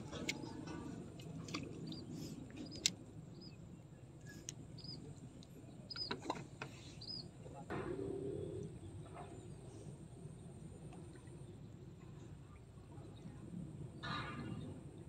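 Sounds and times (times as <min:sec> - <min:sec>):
small bird chirping: 0:01.8 - 0:03.6, 0:04.8 - 0:05.1, 0:05.7 - 0:06.2, 0:07.0 - 0:07.3.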